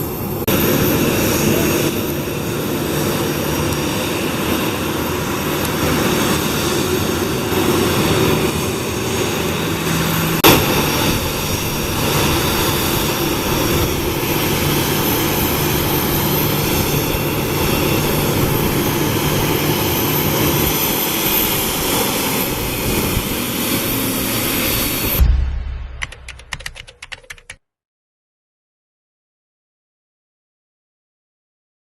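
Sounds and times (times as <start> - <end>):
jet engines running: 0.0 - 27.6
sharp knock: 25.2 - 27.6.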